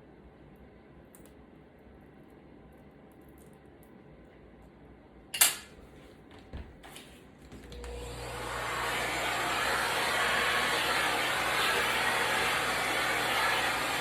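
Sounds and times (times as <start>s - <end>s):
electric blower motor running: 7.6s - 14.0s.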